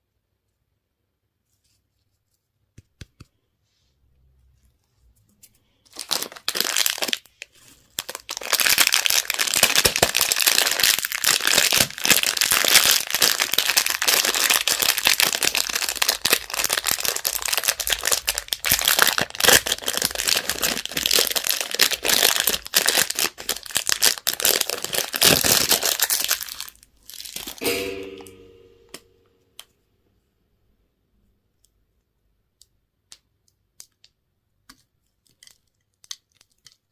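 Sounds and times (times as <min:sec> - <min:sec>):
candy wrapper crinkling: 0:05.7 - 0:27.6, 0:33.8 - 0:36.9.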